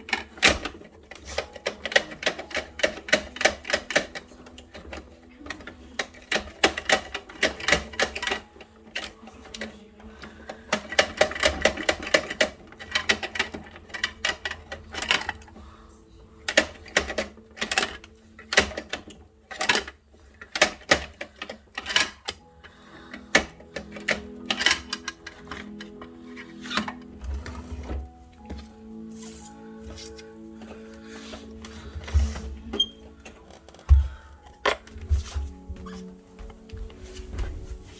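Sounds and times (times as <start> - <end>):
plastic toy trucks clicking: 0.0 - 15.6, 16.4 - 28.1.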